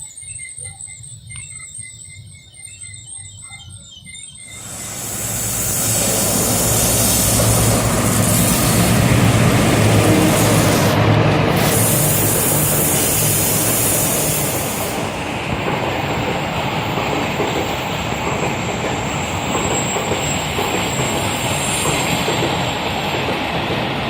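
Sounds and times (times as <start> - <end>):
thin high tone: 0.6 - 11.0
train rumbling on track: 4.4 - 24.0
high hiss: 4.5 - 15.6.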